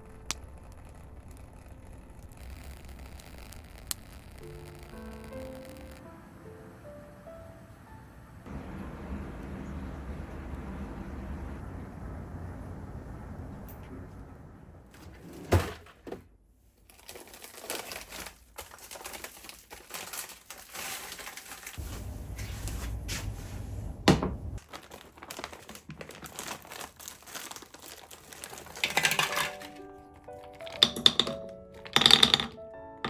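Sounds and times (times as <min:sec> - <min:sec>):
packaging crinkling: 0:16.9 - 0:22.8, 0:24.6 - 0:30.8.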